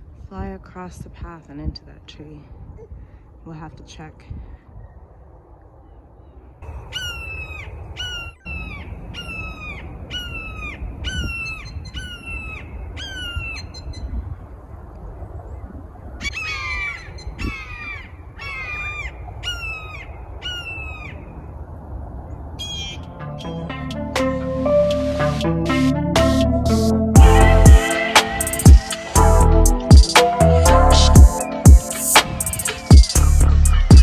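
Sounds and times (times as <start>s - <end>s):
hawk calling harsh notes: 27.2s - 34.0s.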